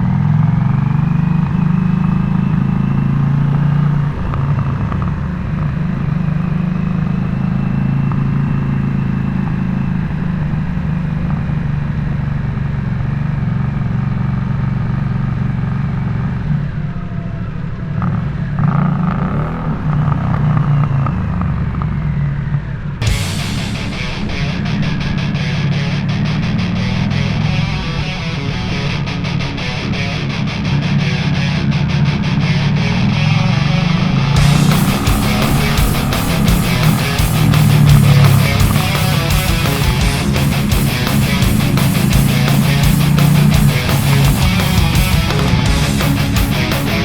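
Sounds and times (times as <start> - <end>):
motorcycle engine exhaust note: 32.8 - 47.0.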